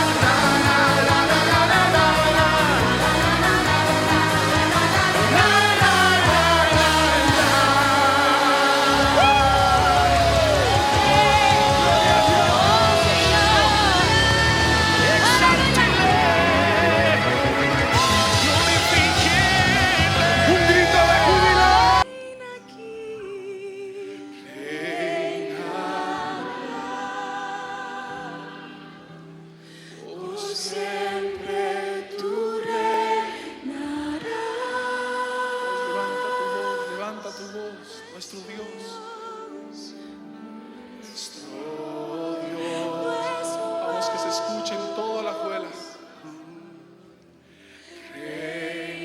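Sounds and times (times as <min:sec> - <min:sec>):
voices singing slow worship song: 0:00.0 - 0:49.0
loud passage: 0:02.6 - 0:22.0.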